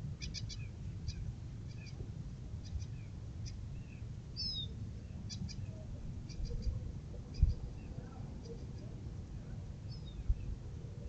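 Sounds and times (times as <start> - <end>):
small birds chirping: 0.2 - 2.0, 2.6 - 11.0.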